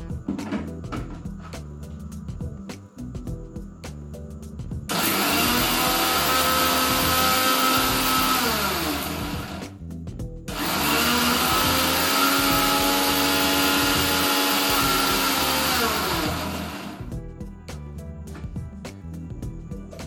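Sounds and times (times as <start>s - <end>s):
mixer grinder motor whine: 4.9s - 9.6s, 10.5s - 17.1s.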